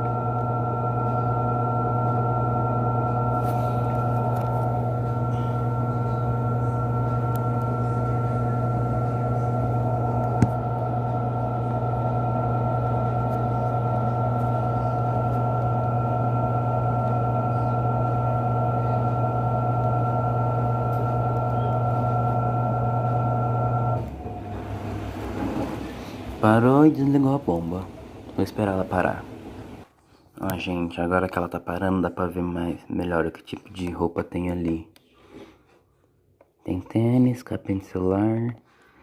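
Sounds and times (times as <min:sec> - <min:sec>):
washing machine drain pump humming: 0:00.0 - 0:29.9.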